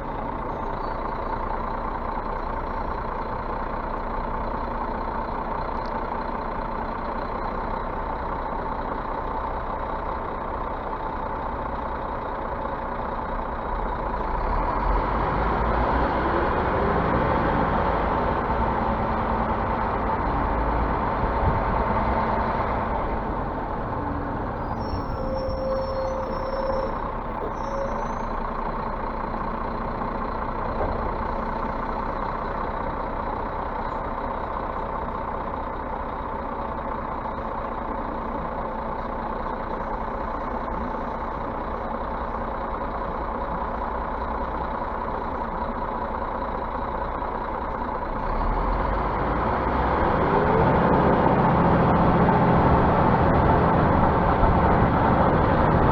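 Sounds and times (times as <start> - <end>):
bus engine running: 0.0 - 55.9
high-pitched squeaks: 24.6 - 28.4.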